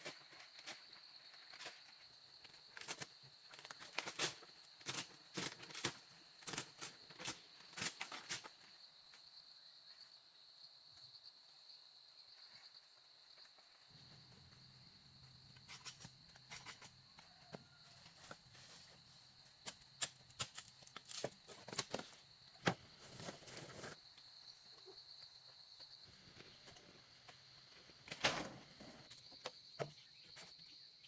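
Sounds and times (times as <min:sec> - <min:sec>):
insects trilling: 0:00.1 - 0:31.0.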